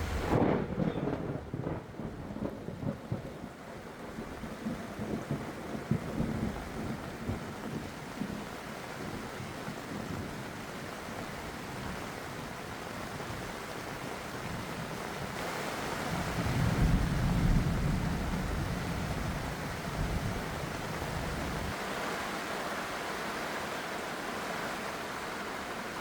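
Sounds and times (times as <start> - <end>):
heavy rain hissing: 0.0 - 0.7, 4.6 - 26.0
thunder rumble: 0.0 - 3.6, 15.4 - 21.8.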